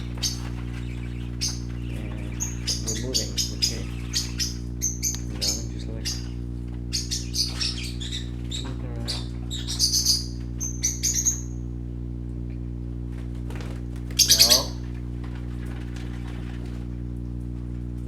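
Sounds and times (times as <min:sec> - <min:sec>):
parrots chirping: 0:00.0 - 0:11.7, 0:13.7 - 0:14.9
low hum: 0:00.0 - 0:18.0
harsh parrot call: 0:14.2 - 0:14.8.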